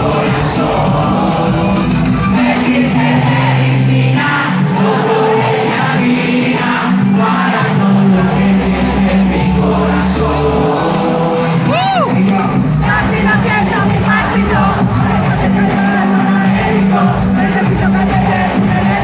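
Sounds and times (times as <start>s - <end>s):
crowd shouting: 0.0s - 19.0s
reggaeton music over sound system: 0.0s - 19.0s
person singing: 6.0s - 19.0s
bass line: 7.8s - 19.0s.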